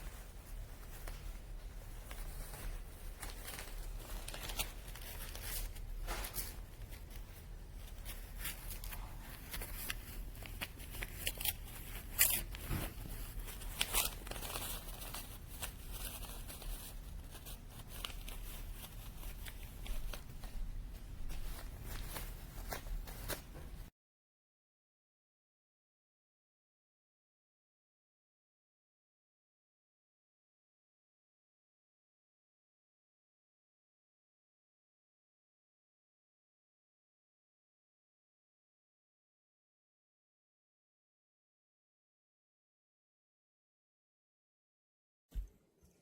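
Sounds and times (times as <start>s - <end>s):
rustling: 0.0s - 23.9s.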